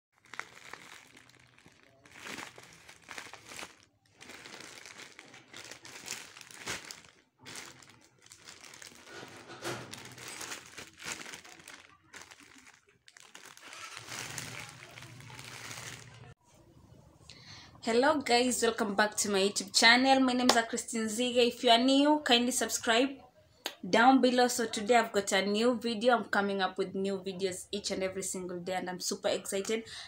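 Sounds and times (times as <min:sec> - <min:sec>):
packaging being crumpled: 0:00.2 - 0:16.4.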